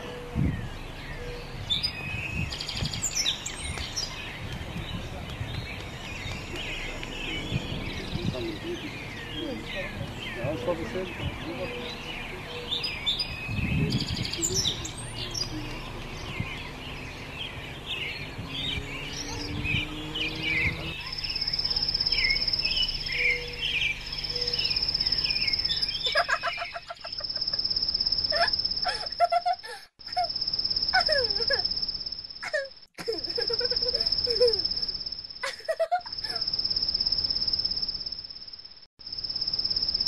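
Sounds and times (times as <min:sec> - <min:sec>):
birds chirping and singing: 0:00.0 - 0:29.5.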